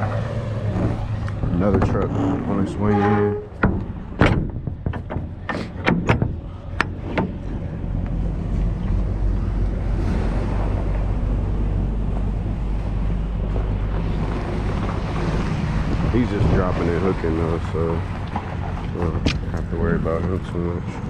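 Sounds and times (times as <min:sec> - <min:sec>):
wind buffeting microphone: 0:00.0 - 0:21.0
sharp knocks: 0:03.4 - 0:07.7, 0:19.2 - 0:19.7.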